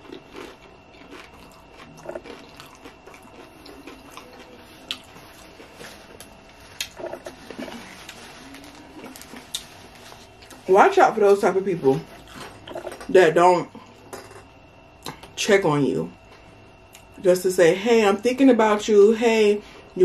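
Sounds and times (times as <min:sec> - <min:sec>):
soft wet chewing: 0:00.0 - 0:10.7.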